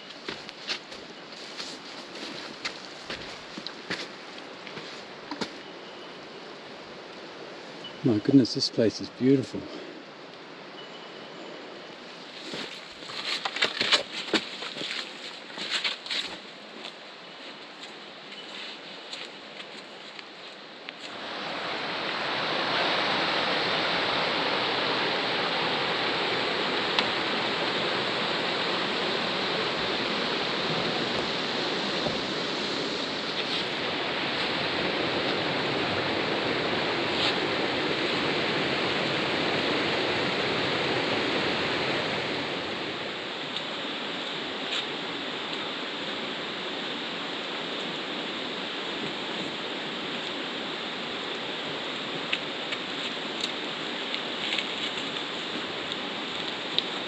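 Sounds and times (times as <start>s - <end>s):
river water rushing over rocks: 20.6s - 57.0s.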